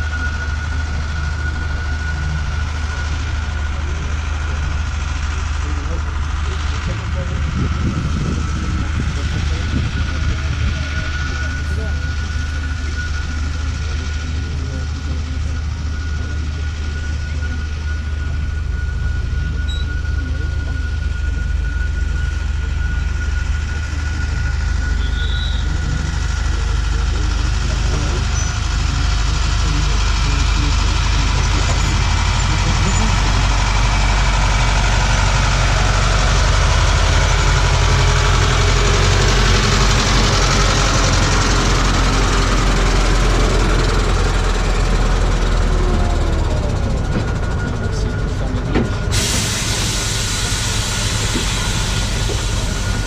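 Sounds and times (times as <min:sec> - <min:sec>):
train low rumble: 0:00.0 - 0:53.0.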